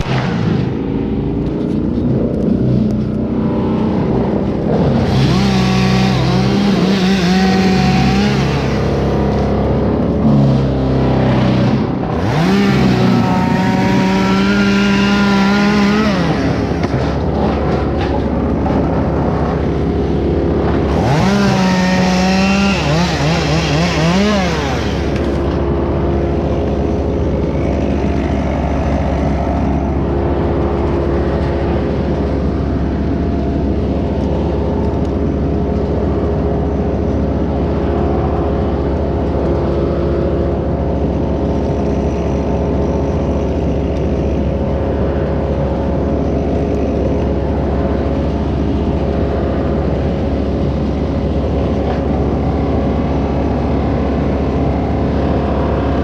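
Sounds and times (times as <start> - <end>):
chainsaw revving: 4.6 - 17.9, 20.6 - 31.6.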